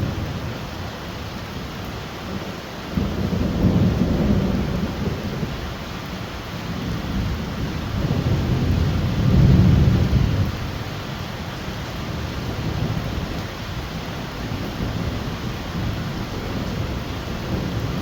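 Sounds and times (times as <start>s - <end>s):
heavy rain falling: 0.0s - 18.0s
thunder rumbling: 2.9s - 5.6s, 6.8s - 10.8s.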